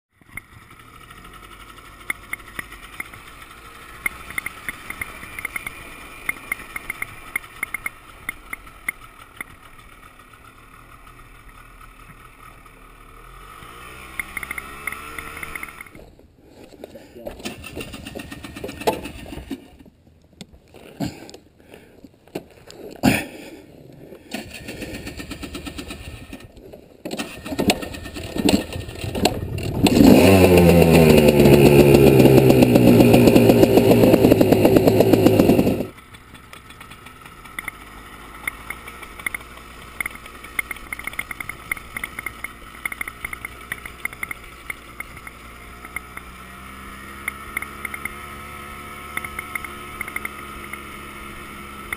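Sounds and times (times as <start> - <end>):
off-road vehicle engine running: 0.1 - 19.7, 24.3 - 51.9
light engine ticking: 0.2 - 16.0, 24.3 - 26.5, 27.2 - 51.9
knocks and clatter: 24.3 - 30.1.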